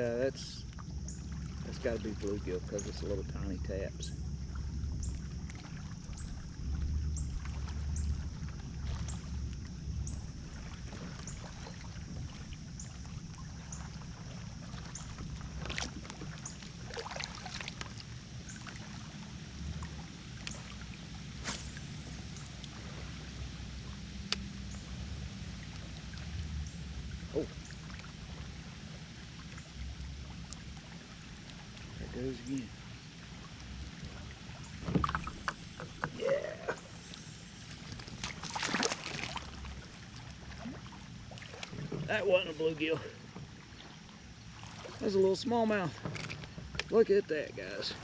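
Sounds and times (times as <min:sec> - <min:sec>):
wind rumble: 0:00.0 - 0:18.6
water lapping: 0:00.0 - 0:48.0.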